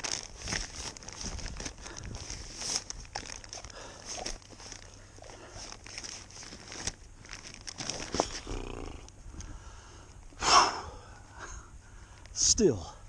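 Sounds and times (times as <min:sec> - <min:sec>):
gear rustling and crinkling: 0:00.0 - 0:10.4.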